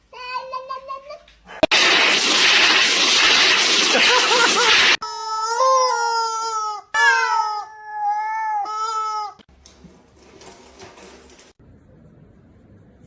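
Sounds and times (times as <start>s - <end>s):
loud rushing noise: 1.6s - 5.0s
cat yowling: 7.0s - 9.4s.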